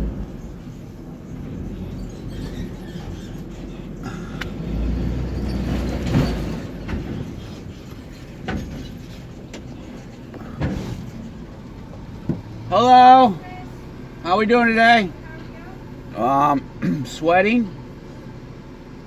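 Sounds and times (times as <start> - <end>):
vehicle engine and road rumble: 0.0 - 19.0
sharp knocks and rattles: 0.2 - 12.7.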